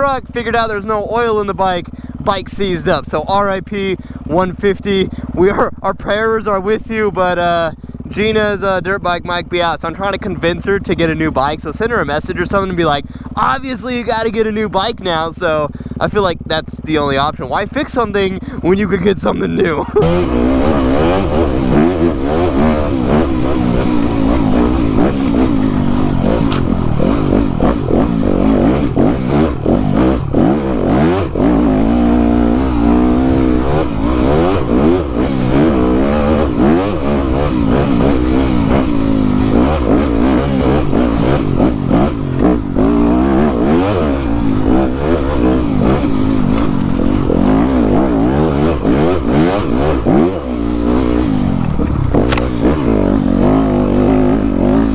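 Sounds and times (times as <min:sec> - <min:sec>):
dirt bike engine revving: 0:09.6 - 0:54.9
bike knocking and clattering: 0:21.1 - 0:35.8, 0:45.0 - 0:49.9, 0:50.7 - 0:53.1.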